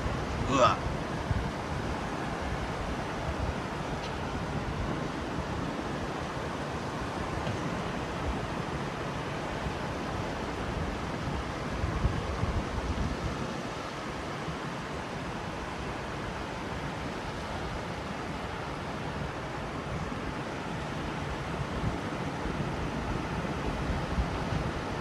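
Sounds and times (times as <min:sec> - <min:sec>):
ocean surf washing: 0:00.0 - 0:25.0.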